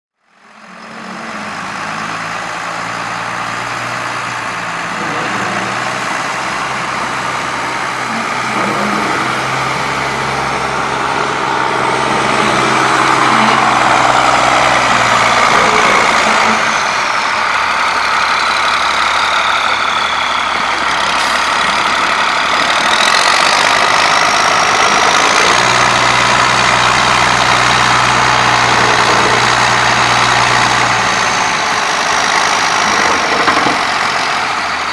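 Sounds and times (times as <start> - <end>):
tractor engine running: 0.4 - 34.9.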